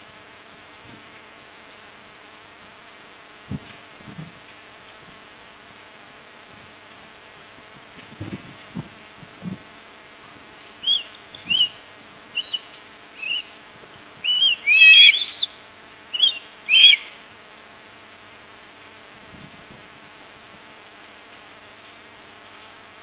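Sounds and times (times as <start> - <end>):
faint steady buzz: 0.0 - 23.0
bird chirping: 10.8 - 13.6, 14.2 - 17.2.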